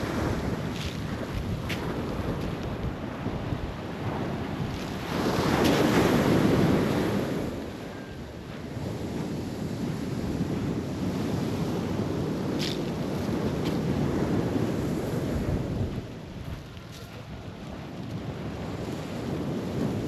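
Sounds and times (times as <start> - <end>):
surf breaking on beach: 0.0 - 7.6
wind buffeting microphone: 0.0 - 20.0.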